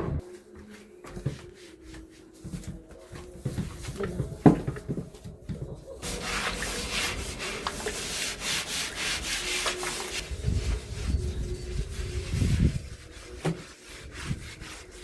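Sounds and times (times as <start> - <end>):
rubbing scraping noise: 6.0 - 15.0.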